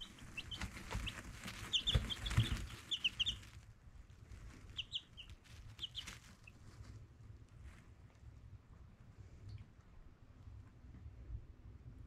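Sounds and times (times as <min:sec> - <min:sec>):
chicks peeping: 0:00.0 - 0:07.0.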